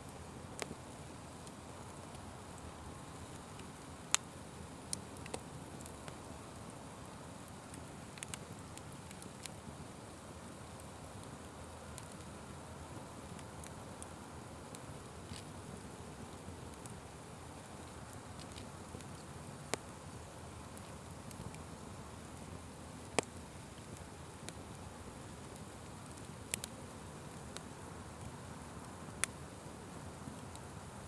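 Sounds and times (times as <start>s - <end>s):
open fire crackling: 0.0s - 31.0s.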